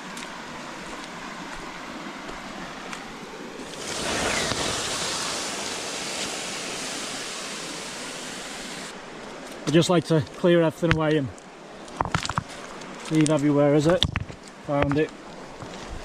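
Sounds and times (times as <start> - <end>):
running water: 0.0 - 14.0
steam hissing from coals: 3.6 - 9.0.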